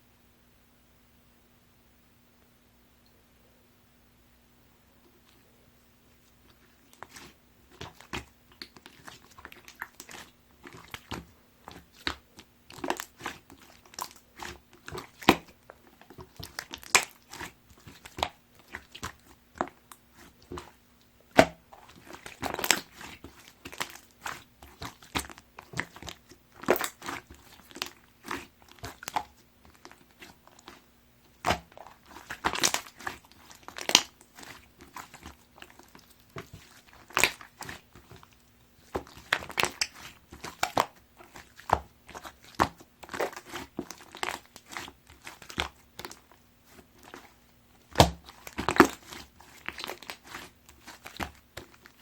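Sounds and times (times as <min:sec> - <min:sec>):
faint low hum: 0:00.0 - 0:52.0
slime crackling and popping: 0:06.9 - 0:52.0.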